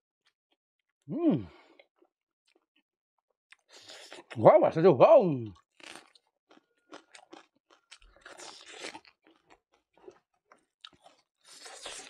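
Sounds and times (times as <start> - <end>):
crunchy chewing of raw onion: 3.5 - 4.4, 5.8 - 12.0.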